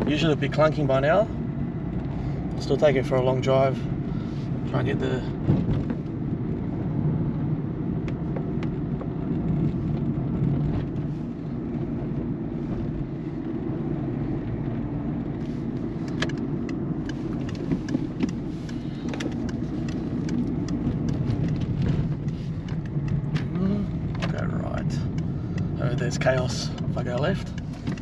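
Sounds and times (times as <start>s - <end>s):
car road and engine rumble: 0.0s - 28.0s
light clicks and ticks: 15.8s - 28.0s.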